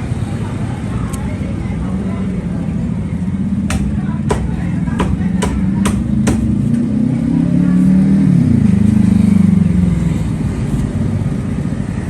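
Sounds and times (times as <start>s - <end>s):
passing vehicle engine: 6.6s - 12.0s.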